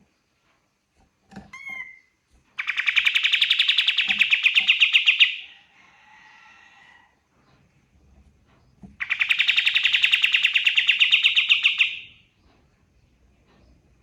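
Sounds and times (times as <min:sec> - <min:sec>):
songbird trilling song: 0:01.5 - 0:05.5, 0:09.0 - 0:12.2.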